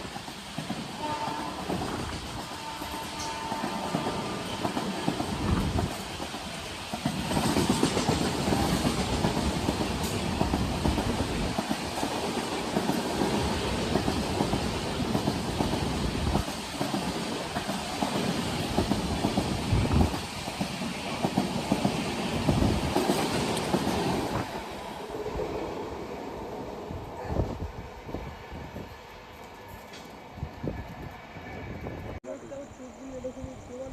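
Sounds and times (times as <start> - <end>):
train wheels clattering over rails: 0.0 - 24.6.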